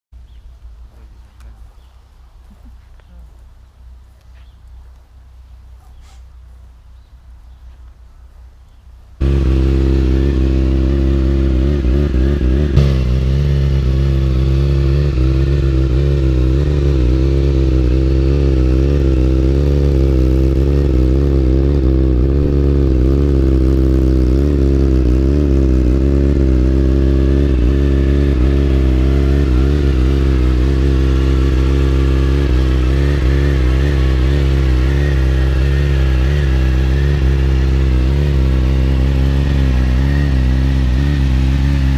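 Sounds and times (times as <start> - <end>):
sport bike engine idling loudly: 9.2 - 41.9.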